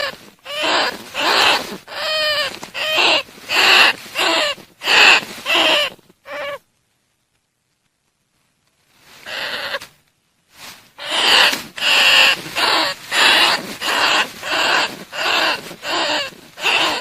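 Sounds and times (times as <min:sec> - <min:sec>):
rat squealing: 0:00.0 - 0:06.6, 0:09.3 - 0:09.8, 0:11.0 - 0:17.0.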